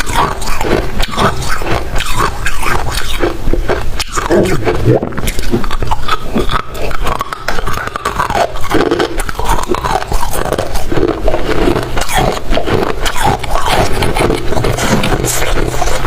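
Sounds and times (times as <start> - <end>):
chewing crunchy frost: 0.0 - 16.0.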